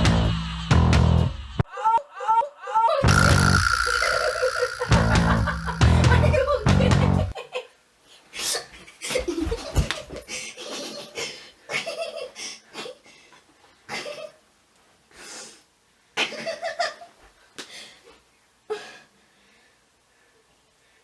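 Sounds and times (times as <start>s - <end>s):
person laughing: 1.7s - 7.7s.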